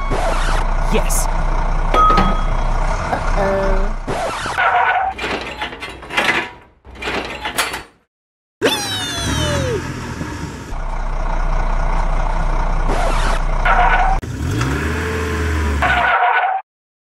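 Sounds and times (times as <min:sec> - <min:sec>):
truck engine running: 0:00.0 - 0:04.5, 0:08.7 - 0:15.8.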